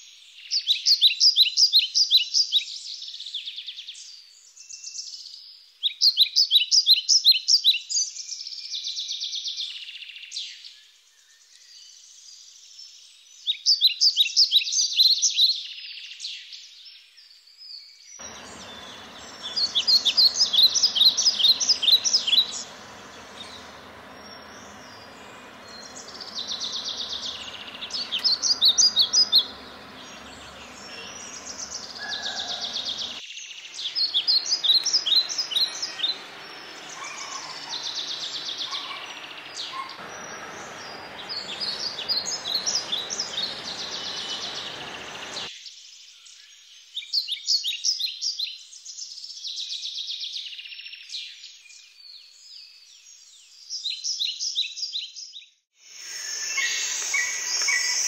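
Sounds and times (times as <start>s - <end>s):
steady background hiss: 18.2s - 45.5s, 55.8s - 58.0s
small birds twittering: 18.2s - 45.7s, 55.9s - 58.0s.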